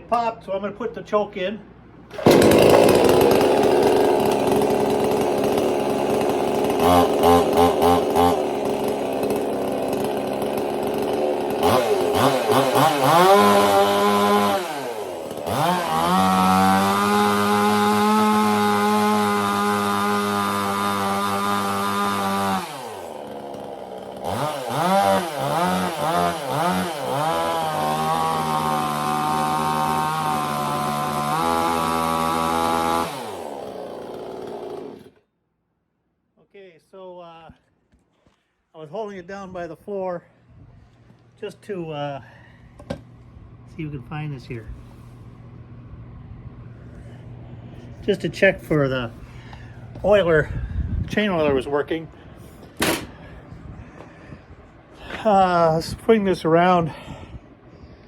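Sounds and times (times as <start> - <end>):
chainsaw revving and idling: 2.1 - 35.2.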